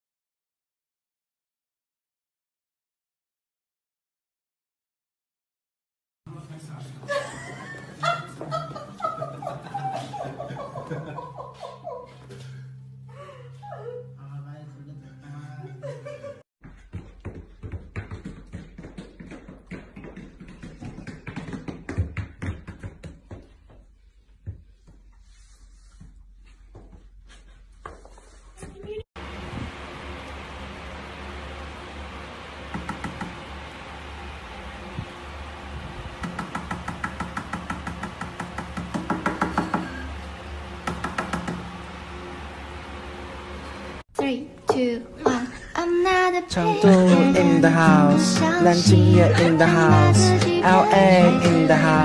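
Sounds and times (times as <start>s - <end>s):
rapid tapping: 36.2s - 40.0s, 40.8s - 41.7s.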